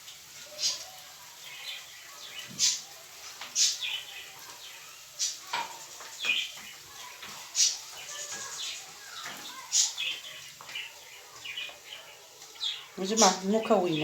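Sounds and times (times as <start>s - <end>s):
high-pitched bird chirps: 6.2s - 14.0s.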